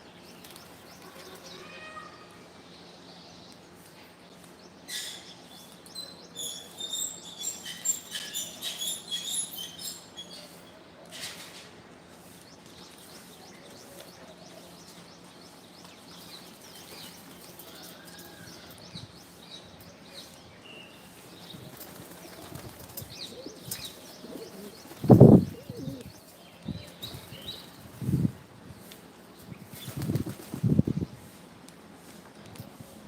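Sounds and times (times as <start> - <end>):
bird wings flapping: 0.4 - 1.5, 21.4 - 25.4, 29.7 - 30.8.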